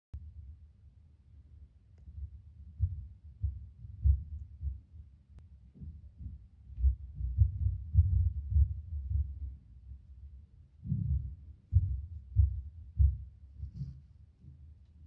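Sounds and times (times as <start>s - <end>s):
dull low knocks: 2.1s - 4.9s, 5.7s - 10.1s, 10.8s - 14.7s.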